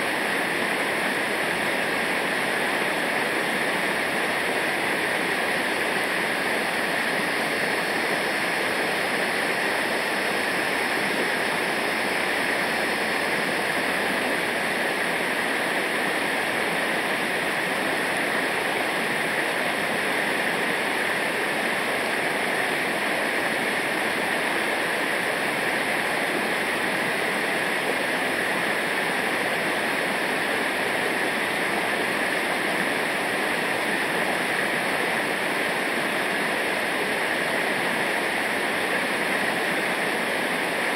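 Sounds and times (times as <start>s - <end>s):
river water rushing over rapids: 0.0s - 40.9s.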